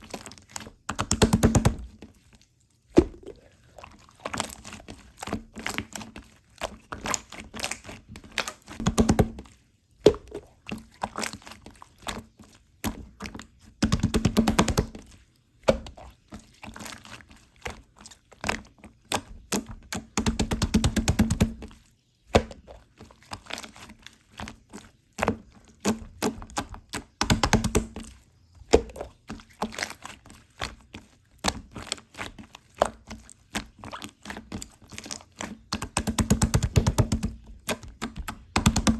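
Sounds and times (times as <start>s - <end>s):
slime clicking and popping: 25.2s - 30.8s, 31.4s - 38.9s.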